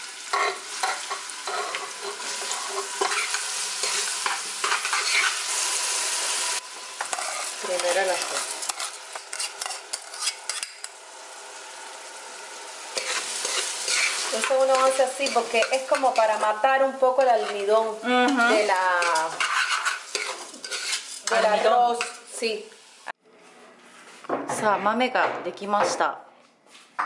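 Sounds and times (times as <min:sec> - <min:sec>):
onion frying in hot oil: 0:00.0 - 0:23.2
utensil scraping a metal pot: 0:00.3 - 0:05.4, 0:07.1 - 0:10.9, 0:13.0 - 0:16.5, 0:17.2 - 0:17.8, 0:18.5 - 0:22.2.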